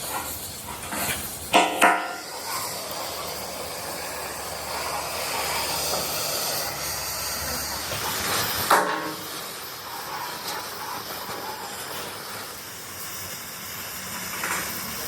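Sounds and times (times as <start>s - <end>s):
steady hissing: 0.0s - 15.0s
metallic clang of struck steel: 1.6s - 2.2s.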